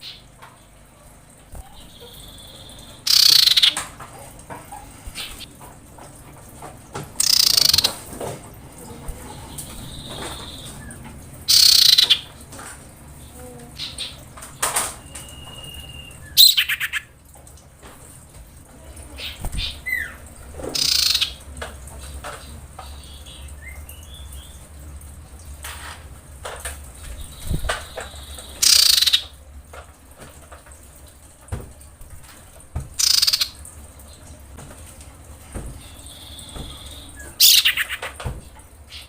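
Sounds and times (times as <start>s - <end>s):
bird giving harsh calls: 1.6s - 3.9s, 7.2s - 8.0s, 9.8s - 12.3s, 15.4s - 17.1s, 20.8s - 21.4s, 28.1s - 29.3s, 33.0s - 33.6s, 35.9s - 38.1s
faint whistled notes and ticks: 15.0s - 16.5s.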